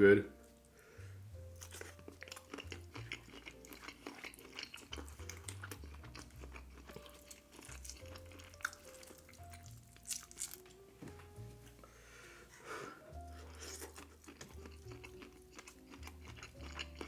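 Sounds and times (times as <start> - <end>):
chewing crunchy fries: 1.4 - 10.8, 13.1 - 17.0.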